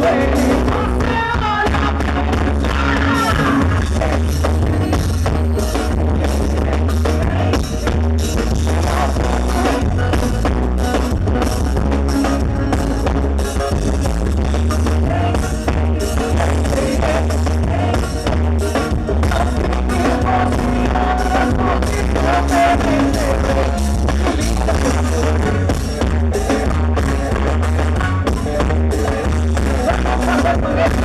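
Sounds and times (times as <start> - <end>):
drum kit beat: 0.0 - 31.0
heavy bass line: 0.0 - 31.0
live band music: 0.0 - 31.0.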